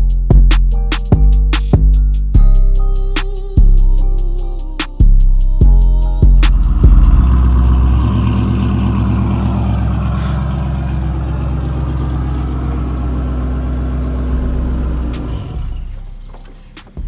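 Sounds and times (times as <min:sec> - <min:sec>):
car engine surging and idling: 0:06.2 - 0:17.0.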